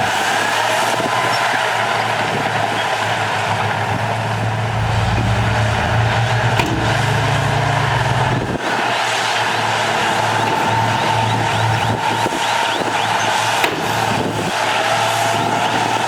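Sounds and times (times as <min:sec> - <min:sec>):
heavy diesel engine running: 0:04.1 - 0:12.0
sharp knock: 0:04.4 - 0:08.6.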